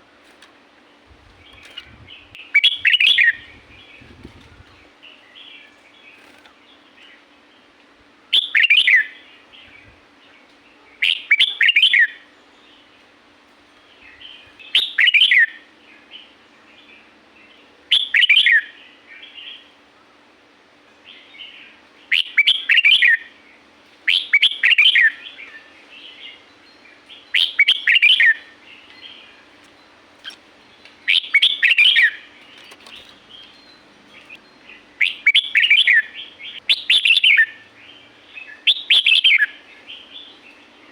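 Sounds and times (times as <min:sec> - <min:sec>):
faint steady hum: 0:00.0 - 0:40.9
bird singing whistled notes: 0:01.5 - 0:05.7, 0:08.3 - 0:09.9, 0:11.0 - 0:12.7, 0:14.1 - 0:16.3, 0:17.9 - 0:19.7, 0:21.1 - 0:23.3, 0:24.1 - 0:29.4, 0:31.0 - 0:40.9.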